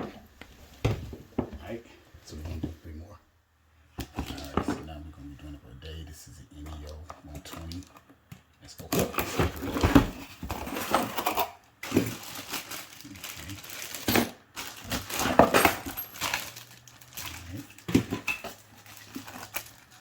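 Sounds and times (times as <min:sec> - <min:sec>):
small hard parts clattering: 0:09.0 - 0:20.0.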